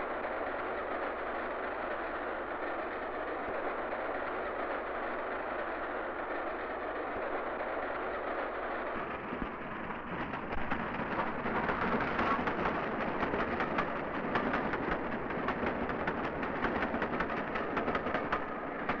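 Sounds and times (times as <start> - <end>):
train rushing noise: 0.2 - 19.0
wheels clattering over rail joints: 10.1 - 19.0.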